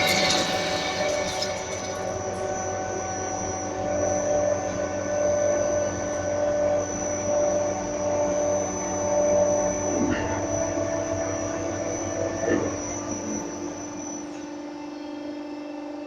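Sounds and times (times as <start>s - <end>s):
lathe machine hum: 0.0s - 2.9s
high-pitched whining tones: 0.0s - 3.0s.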